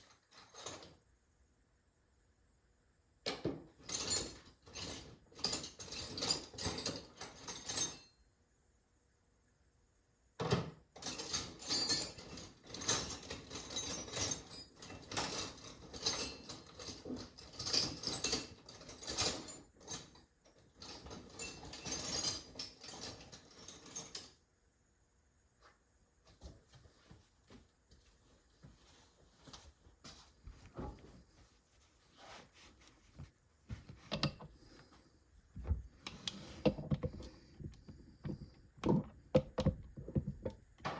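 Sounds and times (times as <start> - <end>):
metal tools clattering: 0.0 - 1.0, 3.4 - 8.3, 10.4 - 24.4.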